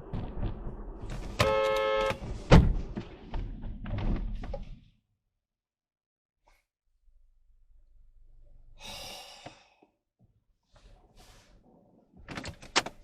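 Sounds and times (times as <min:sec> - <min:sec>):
person sighing: 0:08.8 - 0:09.8.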